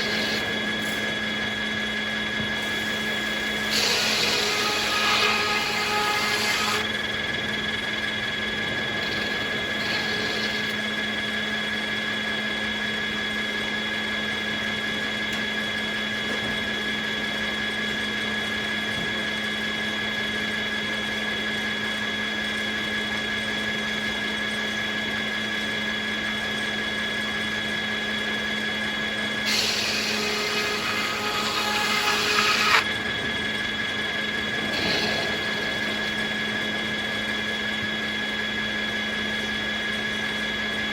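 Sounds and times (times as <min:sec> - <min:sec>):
circular saw cutting wood: 0:00.0 - 0:11.8, 0:29.2 - 0:39.2
sawmill running: 0:00.0 - 0:23.0, 0:26.2 - 0:40.9.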